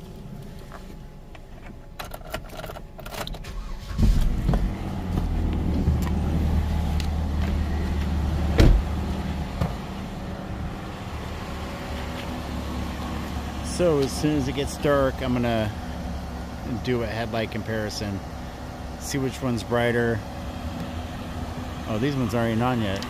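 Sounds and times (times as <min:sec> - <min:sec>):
car engine cranking and idling: 0:00.0 - 0:23.0
keys clicking into ignition: 0:01.3 - 0:04.0
sharp thump: 0:08.6 - 0:08.9.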